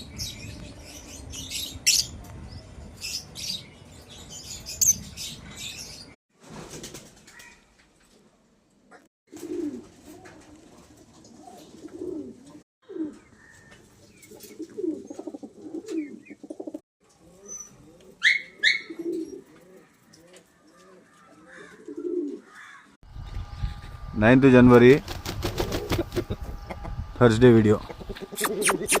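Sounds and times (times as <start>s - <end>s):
pigeons cooing: 9.0s - 22.8s, 27.8s - 29.0s.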